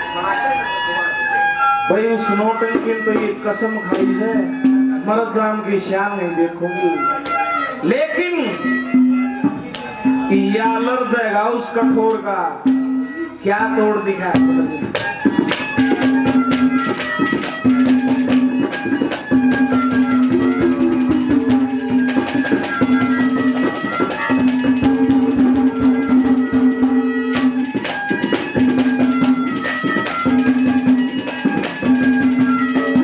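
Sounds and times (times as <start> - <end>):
droning folk melody: 0.0 - 33.0
hand drum strokes: 2.6 - 5.9, 13.6 - 33.0.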